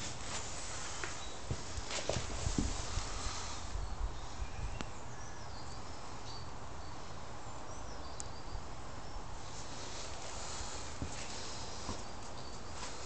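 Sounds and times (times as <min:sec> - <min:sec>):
low wind rumble on microphone: 0:01.5 - 0:10.0.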